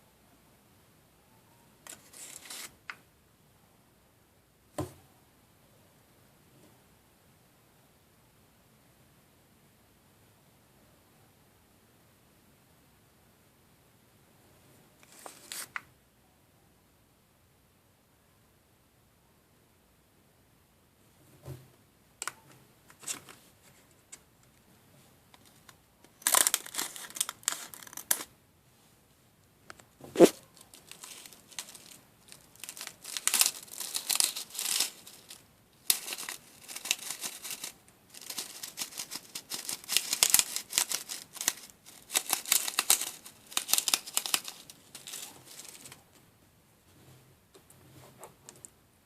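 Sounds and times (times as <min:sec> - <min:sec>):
packaging crinkling and tearing: 0:01.9 - 0:02.7, 0:25.4 - 0:28.3, 0:30.2 - 0:46.0.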